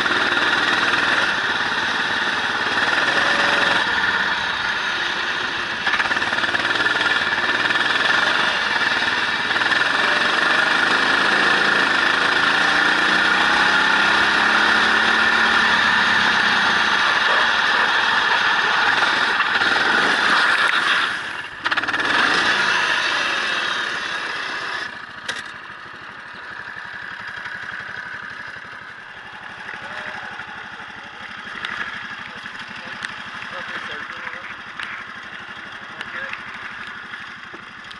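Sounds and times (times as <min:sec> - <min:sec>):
racing car engine revving: 0:00.0 - 0:25.5.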